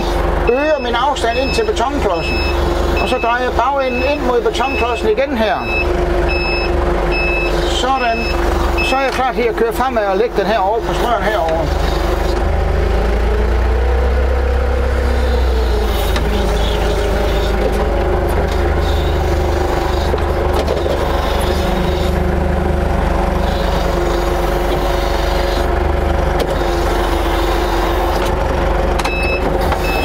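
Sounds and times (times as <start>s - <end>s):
forklift engine running: 0.0s - 30.0s.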